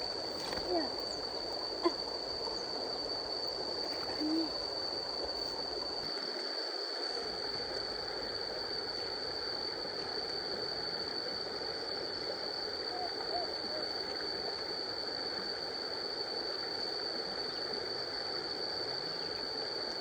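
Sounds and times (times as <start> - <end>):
low hooting call: 12.8 - 14.2.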